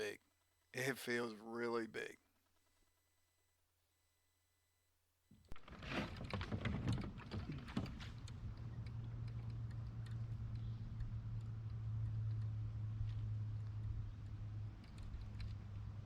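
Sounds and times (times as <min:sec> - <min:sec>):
sharp clicks and knocks: 0:05.5 - 0:15.8.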